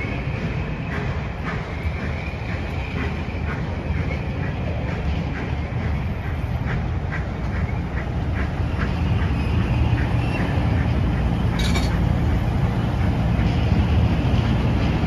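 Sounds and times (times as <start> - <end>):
train wheels rumbling on rail: 0.0 - 15.0
sharp clank: 11.5 - 12.0.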